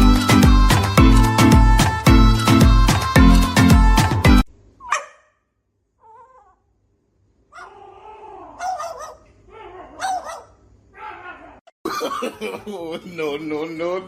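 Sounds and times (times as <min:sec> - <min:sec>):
pet animal whining and crying: 0:06.0 - 0:06.7, 0:07.5 - 0:11.6.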